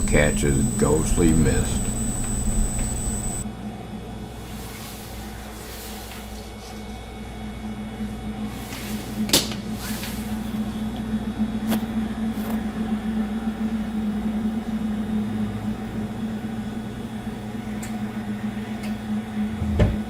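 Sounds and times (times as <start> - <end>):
low electrical hum: 0.0 - 3.6.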